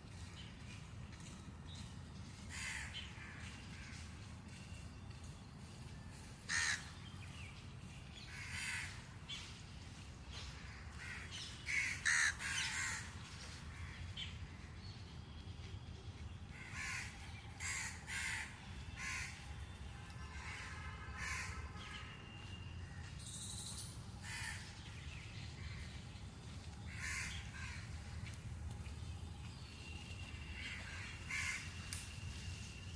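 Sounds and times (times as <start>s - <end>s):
crows cawing: 2.5s - 4.0s, 6.5s - 6.9s, 8.3s - 9.1s, 10.9s - 13.2s, 16.6s - 19.4s, 20.3s - 22.0s, 24.2s - 24.7s, 26.9s - 27.9s, 30.6s - 31.8s.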